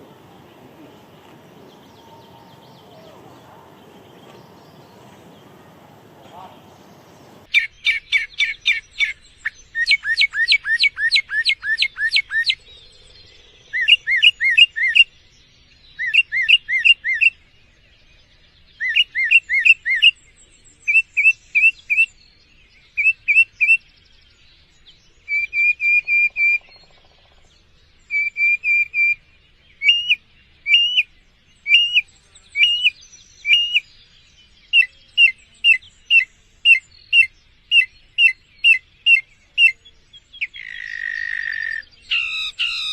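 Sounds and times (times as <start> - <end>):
songbird whistling: 0.0 - 12.6, 28.1 - 29.2, 29.8 - 33.9, 34.7 - 42.9.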